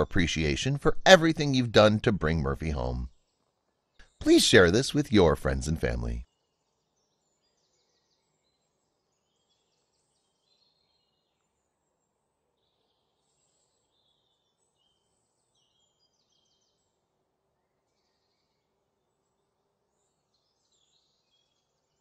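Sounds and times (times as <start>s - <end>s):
faint bird chirps and trills: 6.2s - 22.0s.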